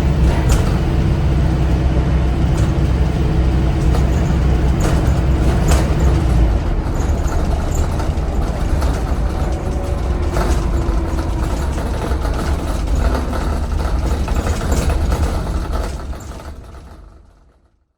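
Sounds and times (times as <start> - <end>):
bus engine rumbling: 0.0 - 17.7
light rattles: 2.4 - 17.4.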